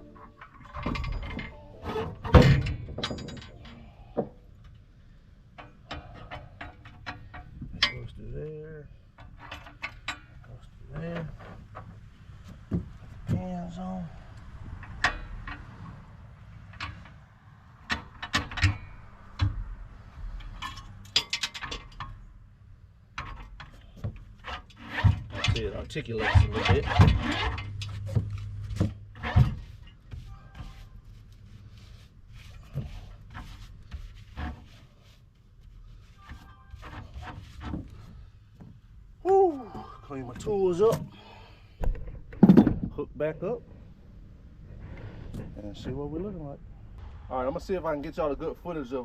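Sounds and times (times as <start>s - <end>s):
metallic clicks and knocks: 0.0s - 4.8s, 16.6s - 19.8s, 20.4s - 22.3s.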